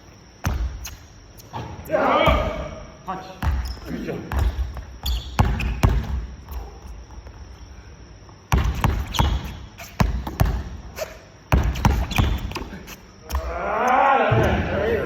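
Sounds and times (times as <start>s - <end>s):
basketballs bouncing on court floor: 1.6s - 2.8s, 3.4s - 7.5s, 8.5s - 10.9s, 11.5s - 13.6s, 14.3s - 14.8s.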